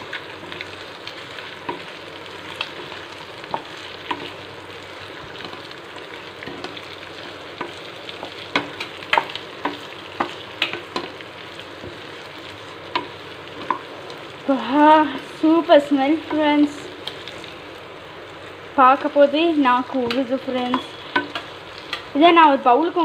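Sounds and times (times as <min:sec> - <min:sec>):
chicken sizzling in oil: 0:00.0 - 0:23.0.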